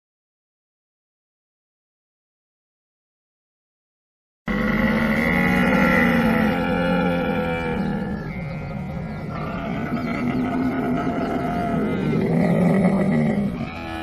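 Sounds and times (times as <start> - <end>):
camel calling: 4.5 - 14.0.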